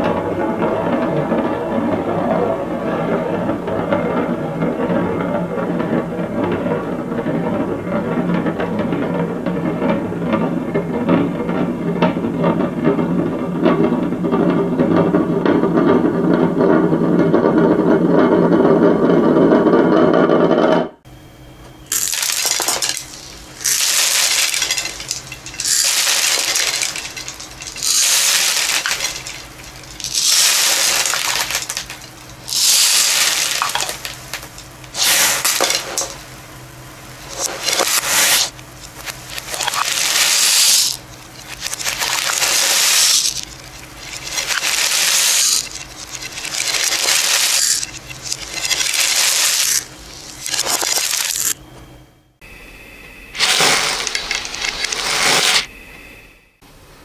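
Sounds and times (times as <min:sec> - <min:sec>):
beads pouring and clattering: 0:21.9 - 0:51.6, 0:53.4 - 0:55.7.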